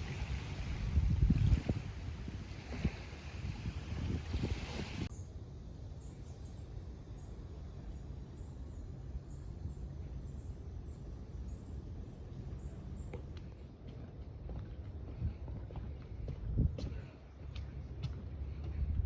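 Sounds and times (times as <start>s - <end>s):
wind on microphone: 0.0s - 5.1s, 15.0s - 17.1s.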